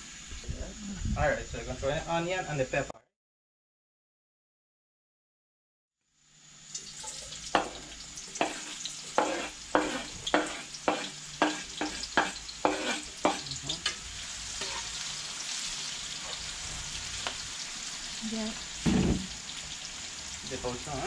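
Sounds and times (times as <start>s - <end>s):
vegetables sizzling in a wok: 0.0s - 2.5s, 6.0s - 21.0s
stirring food in pan: 7.5s - 17.4s
spoon knocking on cutting board: 7.6s - 7.8s, 9.2s - 13.4s.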